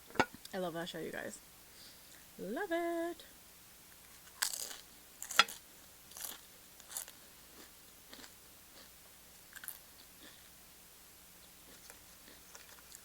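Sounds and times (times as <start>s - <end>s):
crunching and chewing chips: 4.1s - 10.6s, 11.4s - 13.0s.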